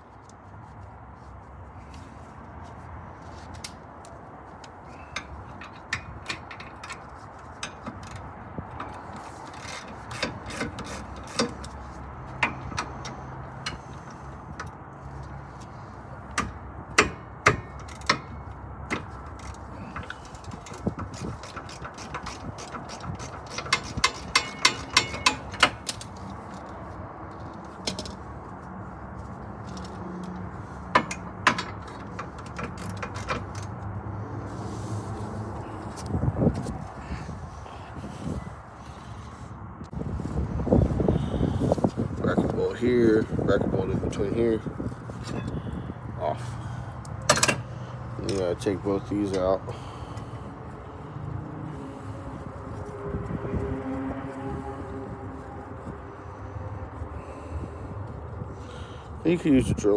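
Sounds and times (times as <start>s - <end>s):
metallic clicks and knocks of tools: 3.5s - 14.8s, 16.3s - 26.8s, 29.6s - 33.9s, 47.0s - 49.5s
ratchet wrench clicking: 8.8s - 14.6s, 16.3s - 26.7s.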